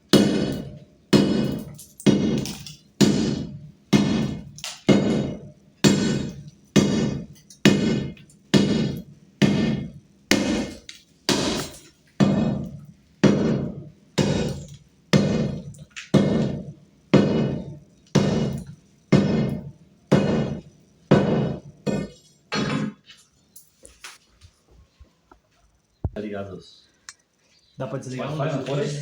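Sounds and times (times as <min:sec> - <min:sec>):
hammer blows ringing: 0:00.1 - 0:23.0.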